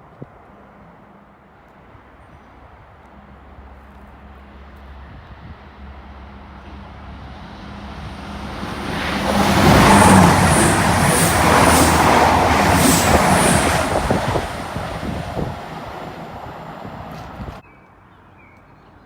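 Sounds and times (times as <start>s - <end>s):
train engine hum: 0.0s - 17.6s
train wheels rushing on rails: 3.7s - 17.6s.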